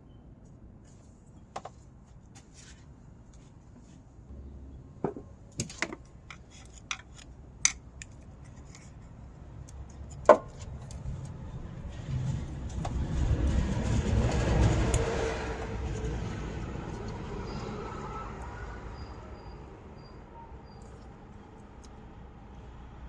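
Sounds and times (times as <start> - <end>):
low rumbling noise: 11.0 - 19.0.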